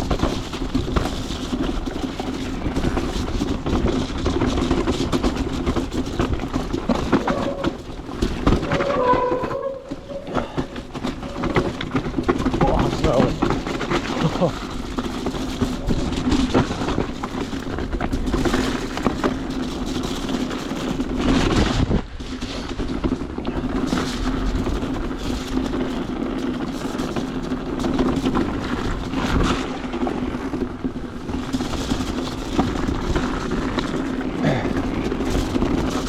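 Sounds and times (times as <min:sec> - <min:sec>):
bike rattling and knocking: 0:00.0 - 0:36.0
electric bike motor hum: 0:00.0 - 0:36.0.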